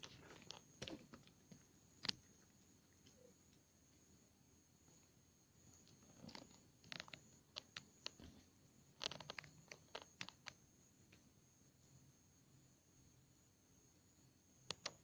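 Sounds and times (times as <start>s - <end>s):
campfire crackling: 5.9s - 8.4s.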